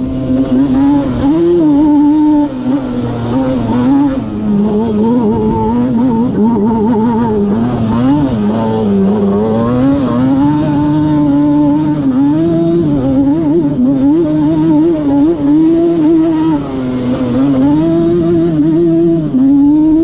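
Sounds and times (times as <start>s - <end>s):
two-stroke engine revving: 0.0s - 20.0s.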